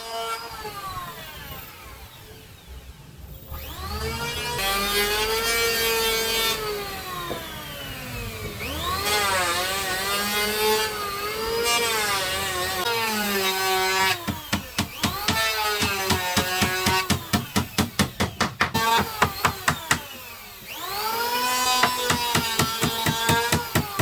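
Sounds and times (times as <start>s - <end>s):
power tool motor cutting wood: 3.6s - 24.0s
sharp knocks: 14.2s - 20.1s, 21.8s - 24.0s.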